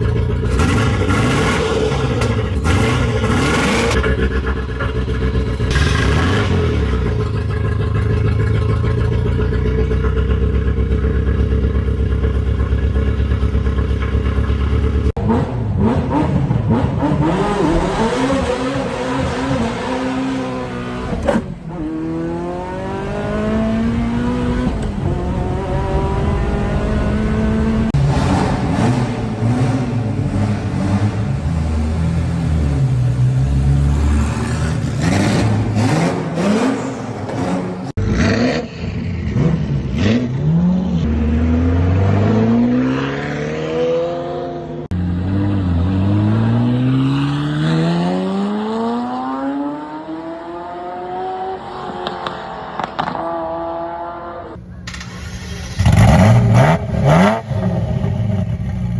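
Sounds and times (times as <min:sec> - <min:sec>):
sports car accelerating hard: 0:14.4 - 0:54.6.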